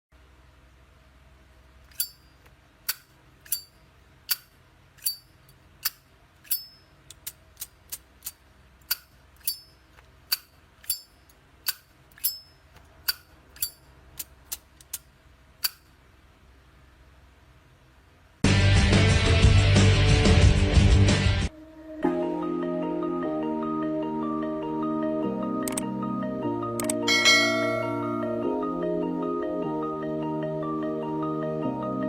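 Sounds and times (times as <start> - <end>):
lighter lid clinking open and shut: 1.9 - 2.3, 2.9 - 9.7, 15.6 - 15.8.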